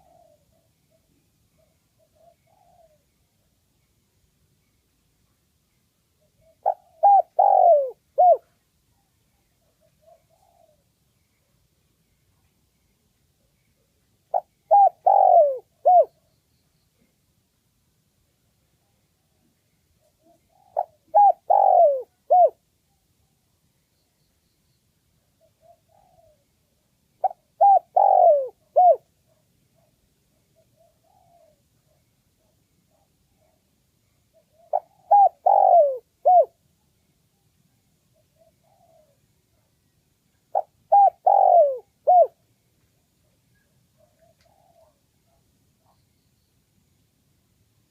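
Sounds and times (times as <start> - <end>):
dove cooing: 0.0 - 3.2, 6.2 - 11.0, 13.8 - 16.2, 20.1 - 22.6, 25.4 - 26.5, 27.2 - 29.9, 30.6 - 33.6, 34.3 - 36.6, 38.2 - 39.7, 40.5 - 42.4, 43.5 - 46.0.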